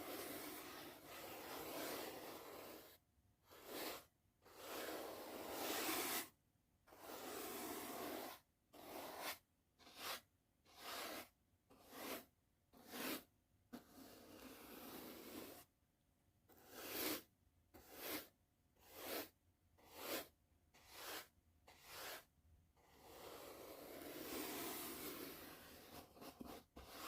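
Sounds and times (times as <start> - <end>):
brush stroking microphone: 0.0 - 6.3.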